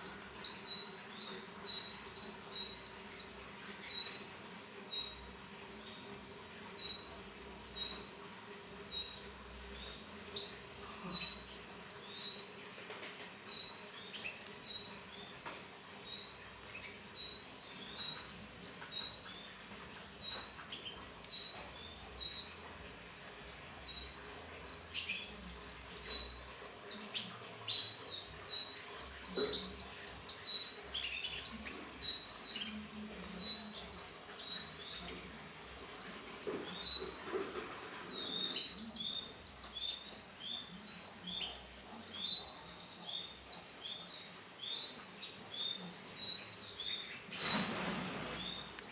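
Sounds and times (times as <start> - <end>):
canaries chirping: 0.0 - 48.9.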